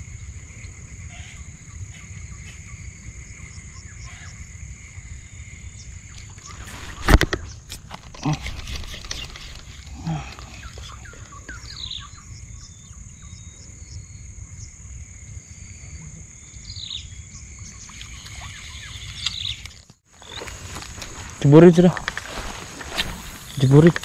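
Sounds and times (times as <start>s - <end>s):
bird chirping: 5.3s - 20.8s.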